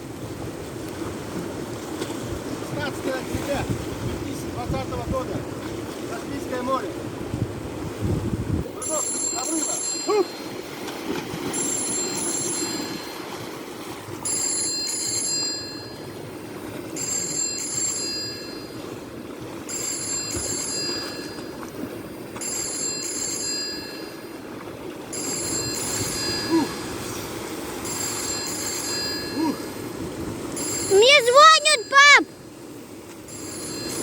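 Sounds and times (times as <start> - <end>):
waves washing onto shore: 0.0 - 34.0
high ringing chirp: 8.8 - 10.6, 11.5 - 13.3, 14.2 - 18.9, 19.7 - 34.0.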